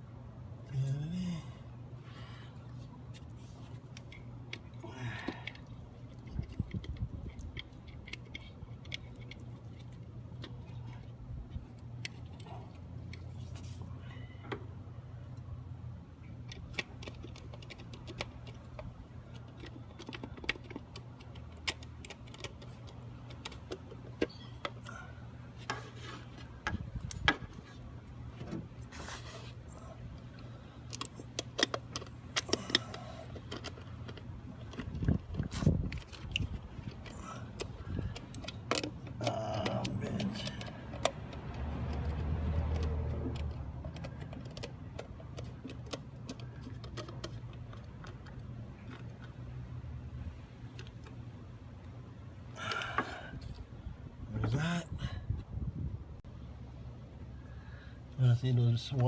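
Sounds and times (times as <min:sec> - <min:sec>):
steady low hum: 0:00.0 - 0:59.0
tools clicking and rattling on engine: 0:04.0 - 0:13.5, 0:16.3 - 0:28.8, 0:29.7 - 0:49.5, 0:52.5 - 0:53.7.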